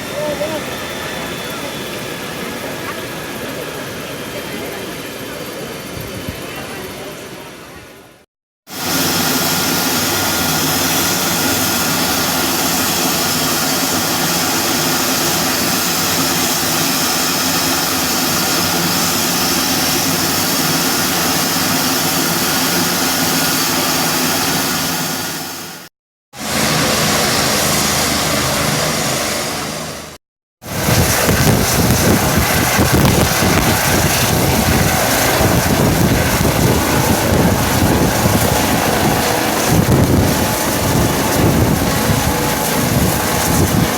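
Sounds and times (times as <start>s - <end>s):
helicopter engine and rotor noise: 0.0s - 43.9s
heavy uneven low rumble: 30.7s - 43.9s.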